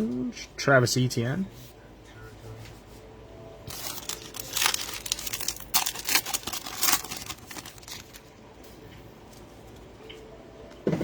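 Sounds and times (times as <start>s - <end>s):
wrapper crinkling and tearing: 3.7s - 8.3s.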